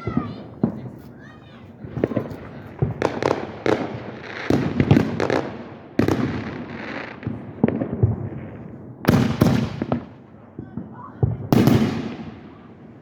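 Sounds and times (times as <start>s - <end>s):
fireworks hissing crackle: 0.0s - 10.1s
fireworks bangs: 0.0s - 13.0s.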